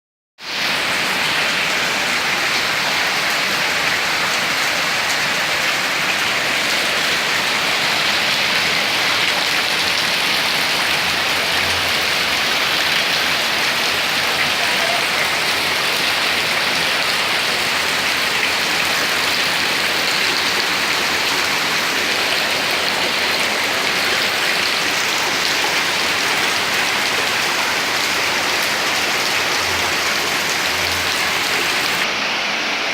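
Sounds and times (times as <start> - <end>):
rain falling steadily: 0.4 - 32.9.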